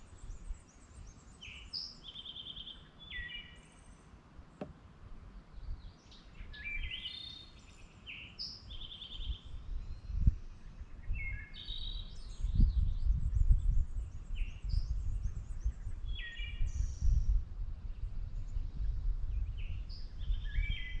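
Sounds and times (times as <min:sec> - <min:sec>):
birds chirping and trilling: 0:05.4 - 0:12.9.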